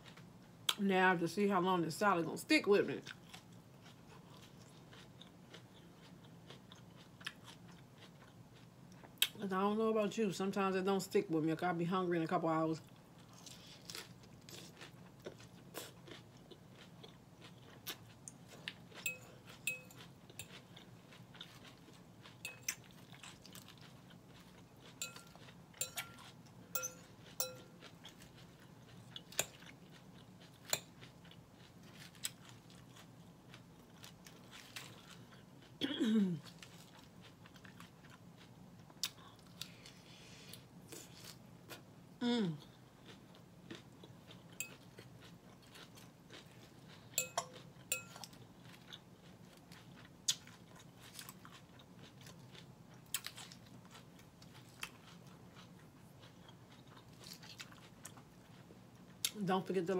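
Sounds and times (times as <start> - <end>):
chewing crunchy salad: 0.0 - 0.8, 2.3 - 10.5, 11.3 - 59.9
fork clinking on glass bowl: 19.0 - 20.5, 22.4 - 22.8, 25.0 - 27.7, 47.2 - 48.3
person humming: 42.2 - 42.7.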